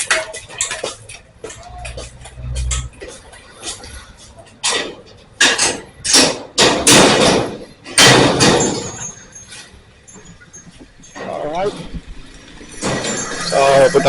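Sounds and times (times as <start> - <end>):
loud knocks: 4.6 - 9.2.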